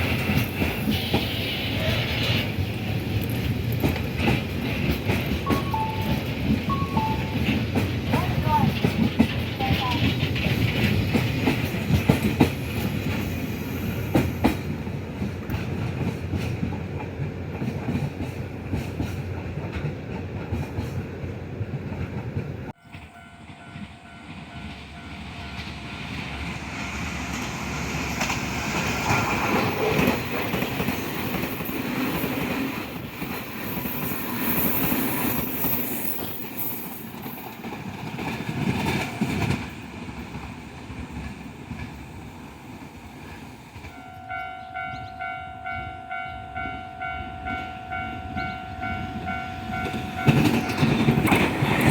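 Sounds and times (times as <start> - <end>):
train wheels clattering over rail joints: 0.0 - 22.6, 27.4 - 42.2, 49.7 - 51.9
train passing: 0.0 - 51.9.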